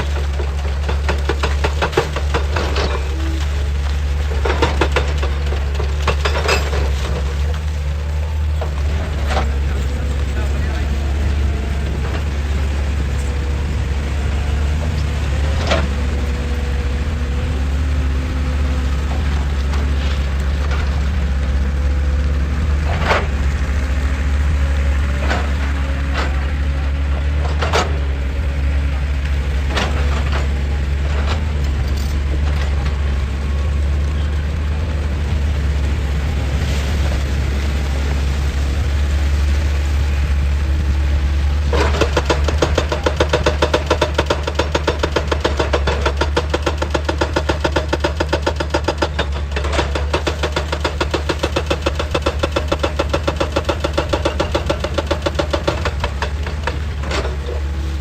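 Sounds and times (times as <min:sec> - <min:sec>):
excavator diesel engine droning: 0:00.0 - 0:58.0
knocks and clanks on rock: 0:00.1 - 0:03.2, 0:04.3 - 0:07.7, 0:41.7 - 0:57.6.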